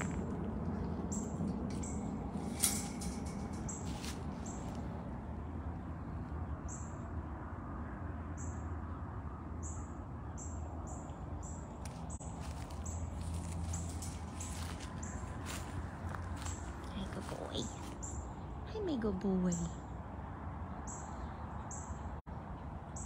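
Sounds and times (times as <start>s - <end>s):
steady low rumble: 0.0s - 8.6s, 11.2s - 18.8s.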